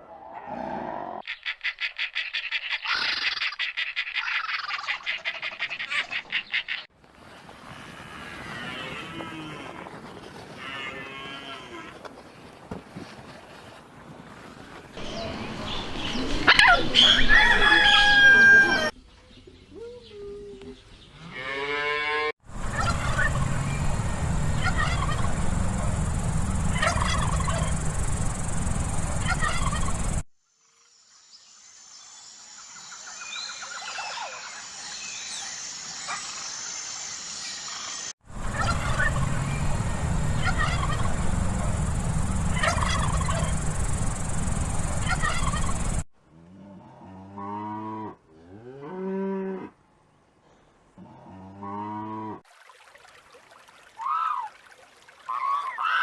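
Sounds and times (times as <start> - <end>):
farm fowl calling: 15.0 - 18.9, 22.5 - 30.2, 38.4 - 46.0.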